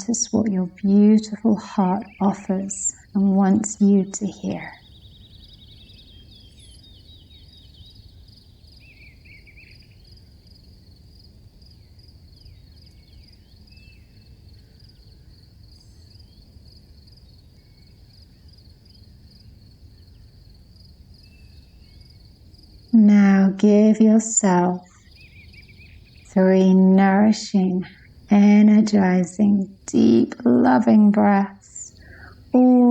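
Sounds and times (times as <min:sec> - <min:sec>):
bird chirps: 0:00.0 - 0:10.1, 0:23.1 - 0:32.9
low background rumble: 0:00.0 - 0:32.9
pulsing insect chirr: 0:00.0 - 0:32.9.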